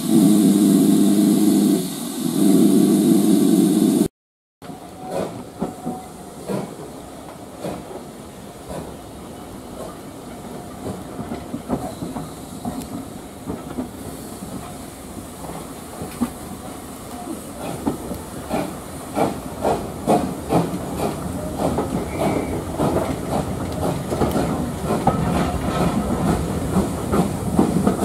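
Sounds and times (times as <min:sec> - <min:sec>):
steam hissing: 0:00.0 - 0:04.1, 0:05.0 - 0:28.0
train wheel clatter: 0:04.6 - 0:09.0, 0:09.7 - 0:28.0
train clanks: 0:04.6 - 0:28.0.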